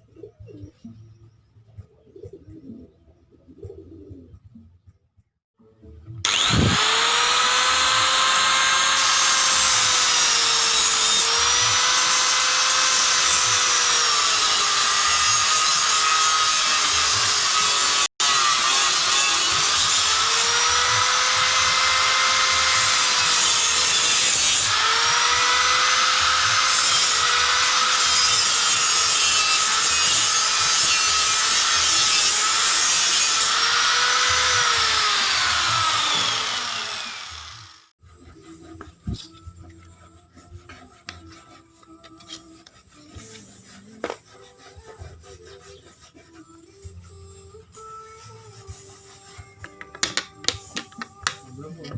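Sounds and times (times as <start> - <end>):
small power tool on wood: 6.2 - 38.0.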